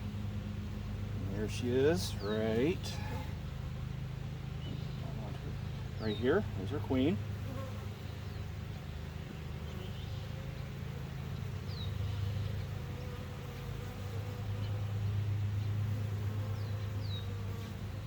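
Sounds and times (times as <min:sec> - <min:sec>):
honey bees buzzing: 0:00.0 - 0:18.0.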